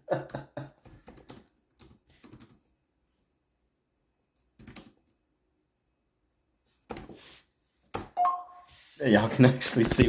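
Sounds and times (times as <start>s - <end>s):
laptop keyboard typing: 0.8s - 2.7s, 4.4s - 5.2s.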